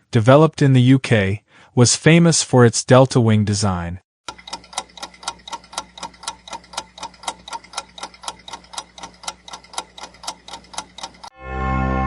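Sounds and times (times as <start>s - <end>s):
fast clock-like ticking: 4.2s - 11.3s.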